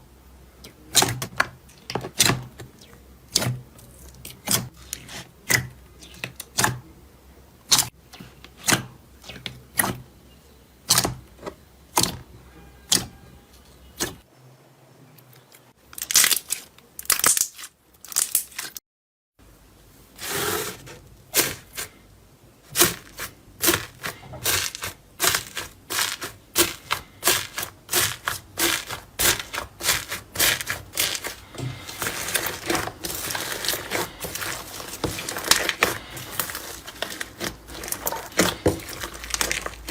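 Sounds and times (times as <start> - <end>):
slime popping and crackling: 16.0 - 18.7, 22.7 - 39.9.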